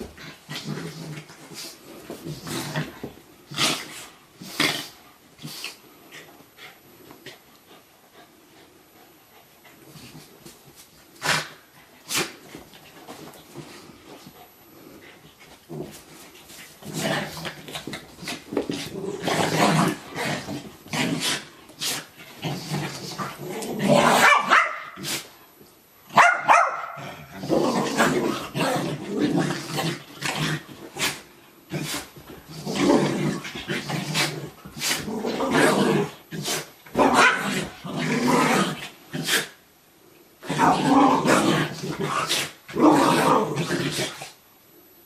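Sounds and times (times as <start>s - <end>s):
dogs growling: 0.0s - 6.3s, 13.6s - 24.3s, 27.0s - 39.6s, 40.4s - 44.4s
dogs barking: 24.2s - 25.0s, 26.2s - 27.0s.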